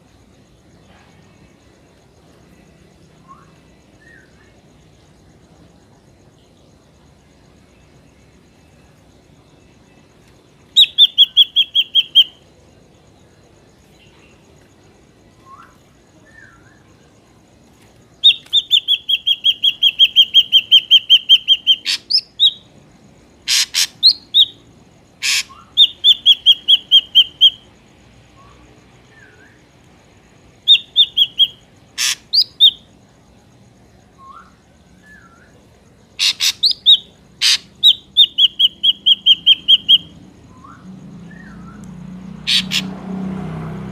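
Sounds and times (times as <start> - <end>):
faint low slurred whistles: 2.5 - 5.1, 15.2 - 17.3, 28.3 - 29.8, 33.8 - 35.9, 38.2 - 42.2
bird ringing calls: 10.8 - 12.4, 18.2 - 22.6, 25.2 - 27.6, 30.7 - 32.8, 36.2 - 40.8, 42.5 - 42.9.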